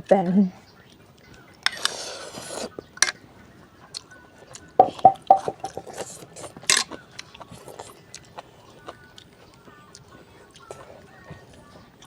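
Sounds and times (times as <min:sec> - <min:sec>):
noodle slurp: 0:01.7 - 0:02.7.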